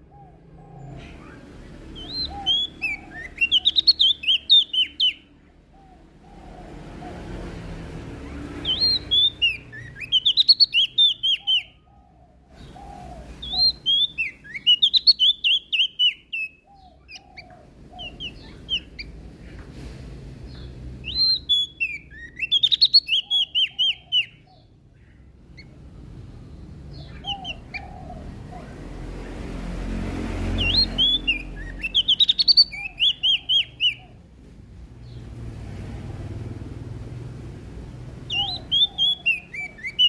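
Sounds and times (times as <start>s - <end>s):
softer lower bird chirps: 0.0s - 7.2s, 8.1s - 19.6s, 20.4s - 28.8s, 30.5s - 34.3s, 38.2s - 40.0s
bird high sweeping chirps: 0.8s - 7.2s, 8.1s - 19.2s, 20.5s - 25.9s, 26.7s - 28.7s, 30.4s - 34.2s, 38.2s - 40.0s.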